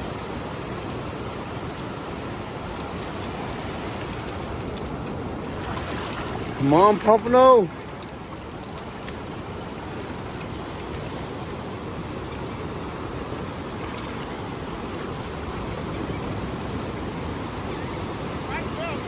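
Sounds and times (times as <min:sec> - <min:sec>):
ocean surf: 0:00.0 - 0:19.0
wind: 0:00.0 - 0:19.0.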